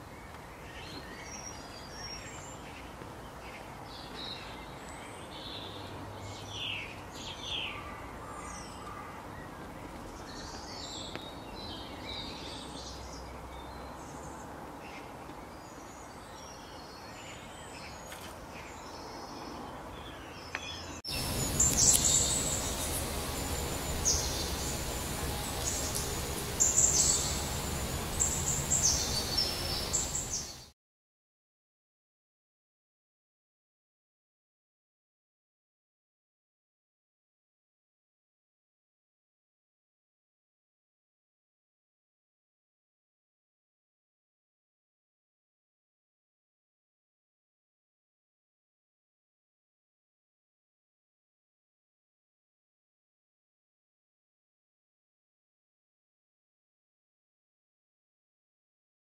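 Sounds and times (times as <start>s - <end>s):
birds chirping and singing: 15.7s - 30.7s
background hiss: 21.1s - 30.7s.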